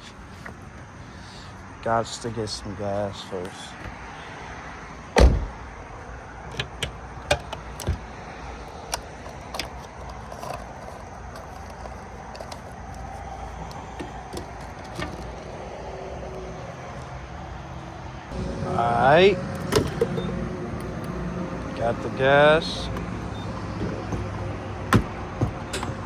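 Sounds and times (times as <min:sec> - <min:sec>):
car door shutting: 0:05.2 - 0:05.6, 0:19.6 - 0:20.4, 0:22.9 - 0:26.0
steady low rumble: 0:18.3 - 0:22.2.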